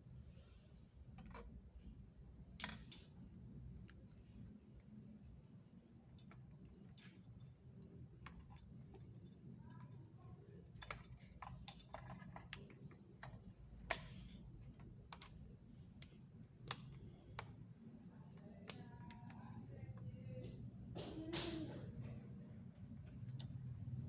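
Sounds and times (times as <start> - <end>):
small parts clicking: 2.5 - 5.0, 10.7 - 17.6, 18.2 - 20.4, 23.0 - 24.0.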